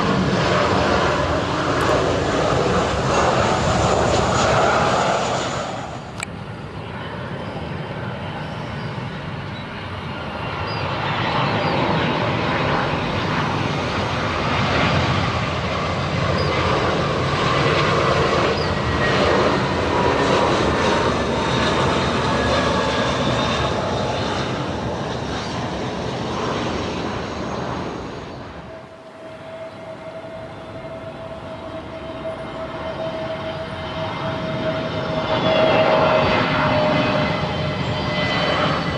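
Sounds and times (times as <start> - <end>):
jet engines running loudly: 0.0 - 38.9.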